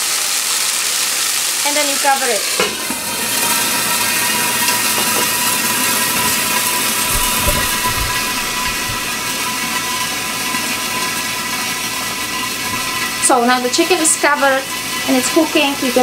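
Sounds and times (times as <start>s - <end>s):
chicken sizzling in hot oil: 0.0s - 16.0s
low thumps: 7.0s - 9.3s.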